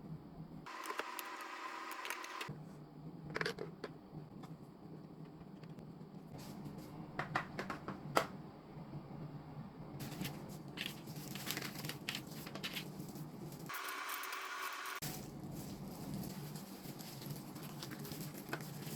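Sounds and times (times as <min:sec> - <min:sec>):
packaging crinkling and rustling: 0:10.0 - 0:14.4, 0:15.0 - 0:18.9.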